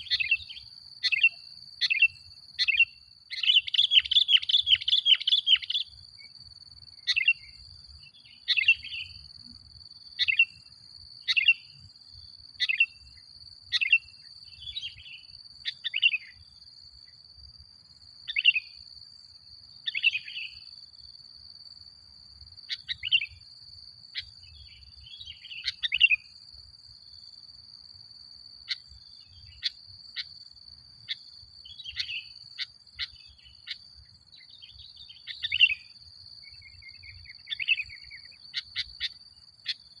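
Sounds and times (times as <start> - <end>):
bird chirping: 0.0 - 17.2, 17.9 - 19.1, 19.7 - 20.8, 22.5 - 27.4, 28.6 - 40.0.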